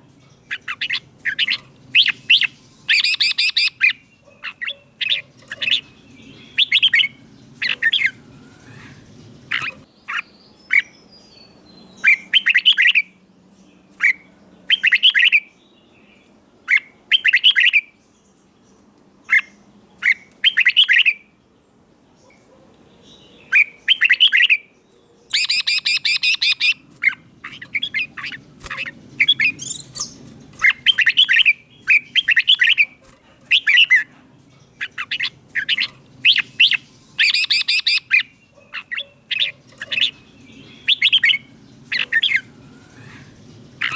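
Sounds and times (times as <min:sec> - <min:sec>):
bird singing whistled phrases: 0:00.5 - 0:04.0, 0:25.3 - 0:26.8, 0:34.8 - 0:38.3, 0:40.7 - 0:41.4.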